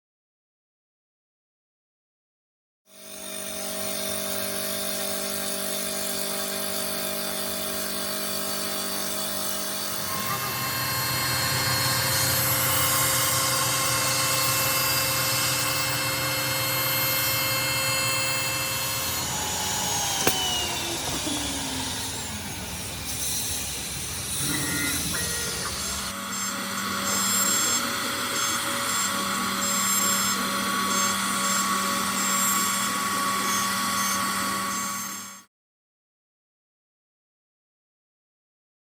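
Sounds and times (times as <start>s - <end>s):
wood lathe machine whine: 2.9s - 35.5s
sharp click: 20.0s - 21.4s.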